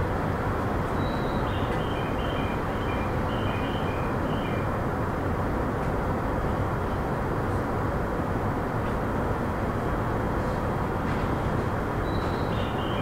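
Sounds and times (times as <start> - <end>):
train wheels rumbling on rail: 4.7 - 13.0.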